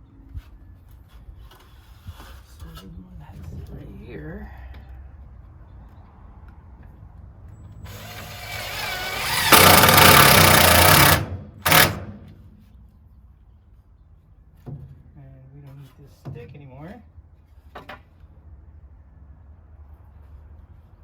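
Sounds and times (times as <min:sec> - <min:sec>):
power drill running: 0:07.9 - 0:12.3.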